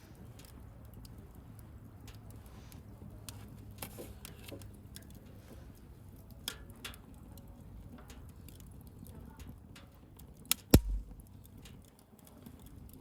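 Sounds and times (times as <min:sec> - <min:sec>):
bonfire crackling and popping: 0:00.0 - 0:13.0
low rumble of burning fire: 0:00.0 - 0:13.0.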